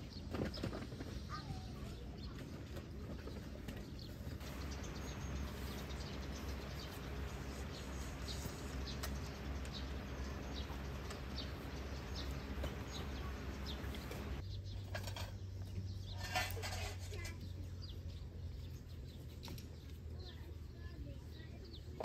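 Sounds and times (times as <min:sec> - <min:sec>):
low steady background noise: 0:00.0 - 0:22.0
bird chirps: 0:03.8 - 0:16.3.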